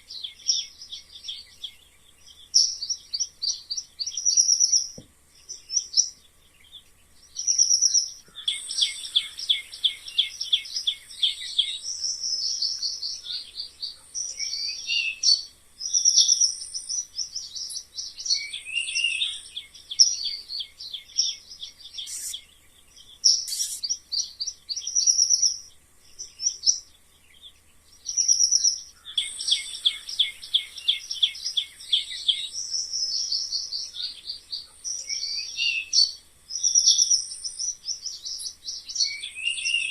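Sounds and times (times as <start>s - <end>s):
mice squeaking: 22.0s - 22.4s, 23.3s - 23.9s.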